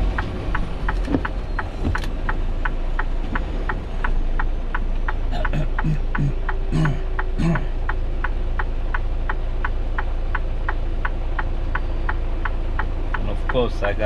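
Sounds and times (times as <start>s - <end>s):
truck engine rumble: 0.0s - 14.0s
turn signal ticking: 0.0s - 14.0s.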